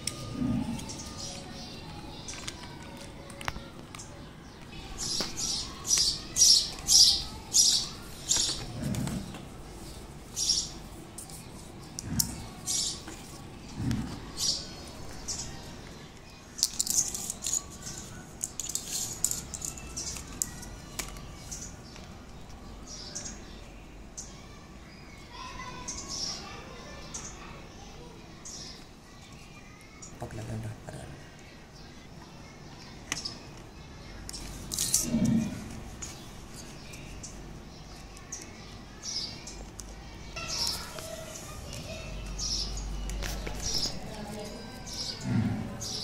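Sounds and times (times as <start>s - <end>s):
plastic blocks clicking: 16.6s - 21.2s.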